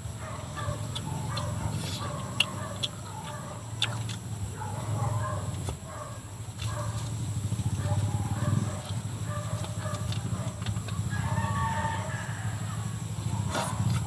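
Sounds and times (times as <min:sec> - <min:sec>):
person chewing food: 0:00.6 - 0:04.3.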